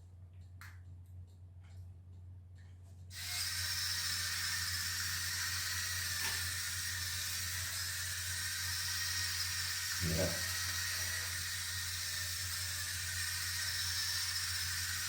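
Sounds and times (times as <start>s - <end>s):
toy car motor whirring: 3.1s - 15.0s.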